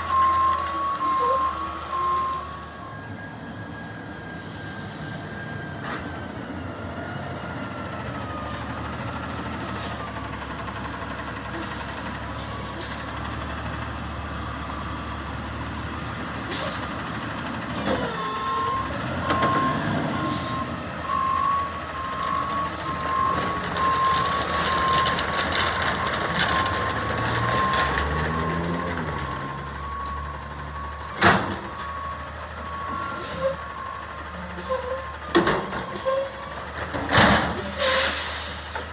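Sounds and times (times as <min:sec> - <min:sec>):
reversing alarm beeping: 0:00.0 - 0:05.8, 0:13.6 - 0:36.6
garbage truck engine running: 0:05.4 - 0:38.9
air brakes burst: 0:16.4 - 0:16.9, 0:37.5 - 0:38.9.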